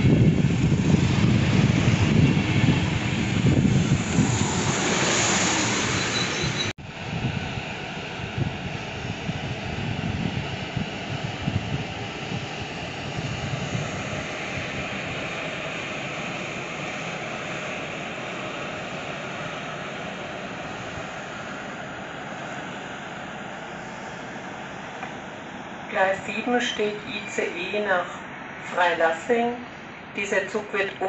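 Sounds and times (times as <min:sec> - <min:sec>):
train wheels rumbling on rail: 0:00.0 - 0:19.2.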